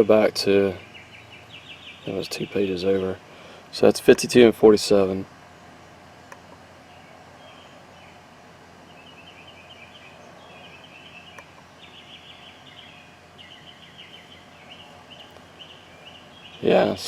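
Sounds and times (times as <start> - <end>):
birds chirping: 0.0 - 17.0
low background hum: 0.0 - 17.0.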